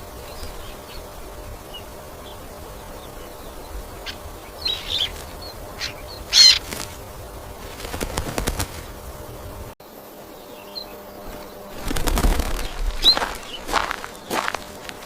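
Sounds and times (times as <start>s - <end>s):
finch chirping: 3.3s - 6.8s, 12.6s - 14.6s.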